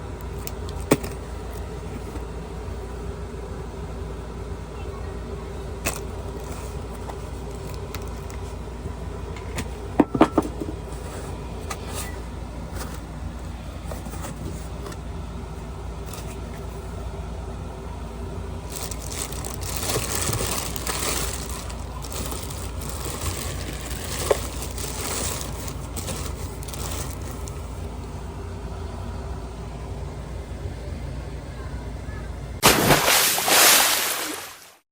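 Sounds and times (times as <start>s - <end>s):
packaging rustling and scraping: 5.9s - 8.6s, 10.4s - 13.1s, 13.8s - 15.0s, 16.1s - 16.6s, 18.6s - 27.9s.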